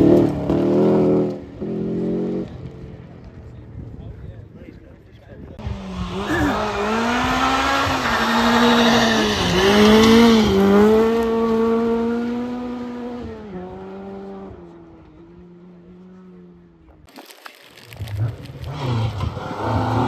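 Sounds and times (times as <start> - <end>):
rally car passing at speed: 5.6 - 16.5, 18.6 - 20.0.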